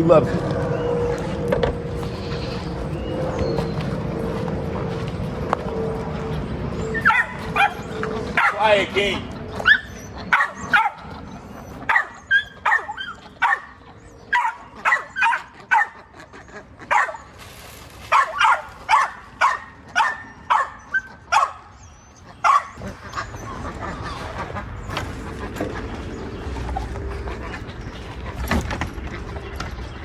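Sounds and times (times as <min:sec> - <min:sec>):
dog barking: 0:07.0 - 0:08.7, 0:09.6 - 0:11.1, 0:11.8 - 0:16.1, 0:16.9 - 0:17.2, 0:18.1 - 0:21.8, 0:22.4 - 0:22.8.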